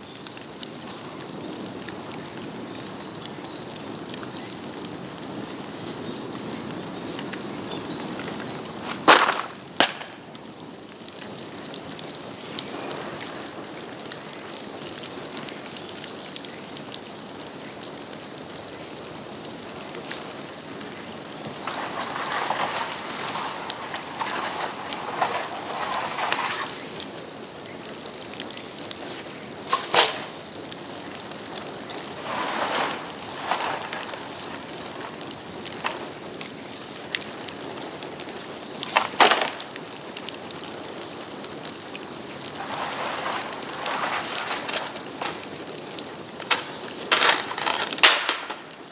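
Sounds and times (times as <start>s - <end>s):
bonfire crackling: 0.0s - 48.9s
bamboo bursting with loud bangs: 8.8s - 10.3s, 29.7s - 30.6s
thin high whistle: 24.2s - 34.6s.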